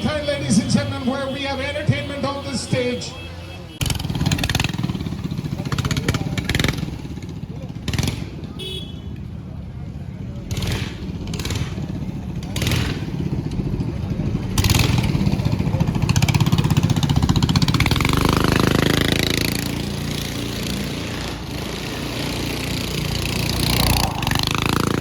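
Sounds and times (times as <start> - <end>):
vehicle engine revving hard: 17.6 - 25.0.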